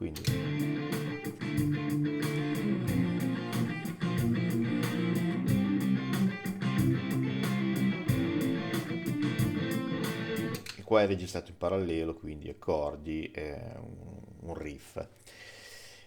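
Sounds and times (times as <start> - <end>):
electric guitar riff: 0.0 - 10.7
steady beat: 0.1 - 10.6
electric guitar chords: 0.1 - 10.7.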